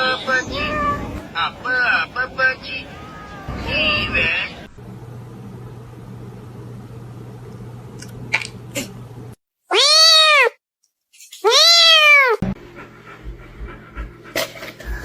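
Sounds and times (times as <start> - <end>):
steady low hum: 0.1 - 9.4
cat meowing loudly: 0.3 - 1.1, 9.7 - 10.6, 11.4 - 12.4.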